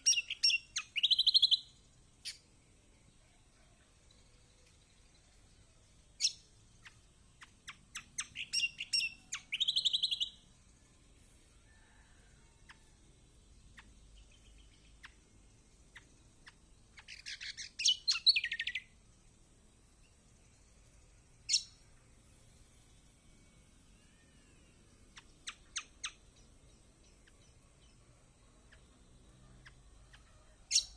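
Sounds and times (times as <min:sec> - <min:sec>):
buzzy bird trill: 0:00.0 - 0:02.5, 0:06.2 - 0:10.9, 0:13.6 - 0:19.0, 0:19.8 - 0:28.0, 0:29.6 - 0:30.9
bird chirping: 0:00.0 - 0:11.0, 0:12.7 - 0:19.0, 0:21.4 - 0:21.9, 0:24.2 - 0:30.9
faint ticks: 0:04.1 - 0:05.2.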